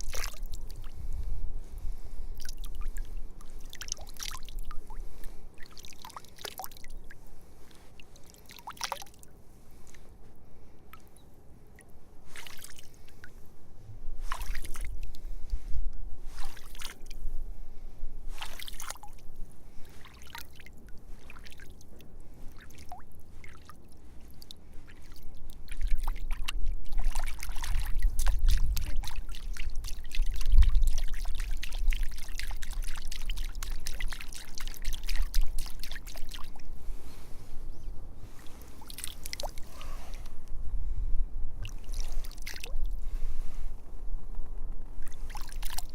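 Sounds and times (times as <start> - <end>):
small water splashes: 0.0 - 1.1, 1.7 - 10.1, 10.9 - 13.4, 14.2 - 15.6, 16.3 - 17.3, 18.3 - 37.4, 38.3 - 40.4, 41.6 - 43.2, 45.0 - 45.9
water trickling and pouring: 25.0 - 36.6.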